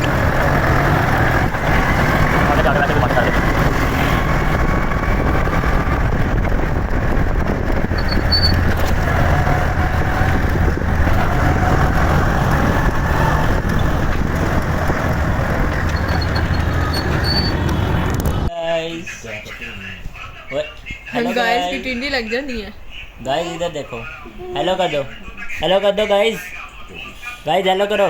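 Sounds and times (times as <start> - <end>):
motorcycle engine drone: 0.0 - 18.5
road and wind noise: 0.0 - 28.0.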